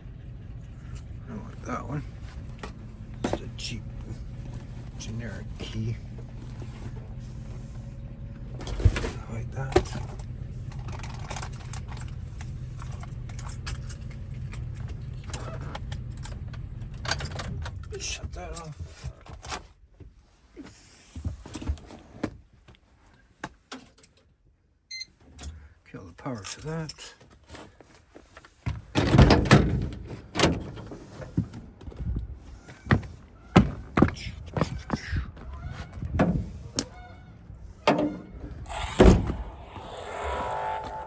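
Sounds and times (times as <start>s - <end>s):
steady low hum: 36.4s - 41.0s.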